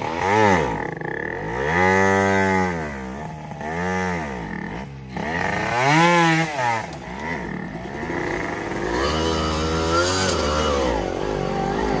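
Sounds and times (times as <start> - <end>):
two-stroke dirt bike engine revving: 0.0 - 12.0.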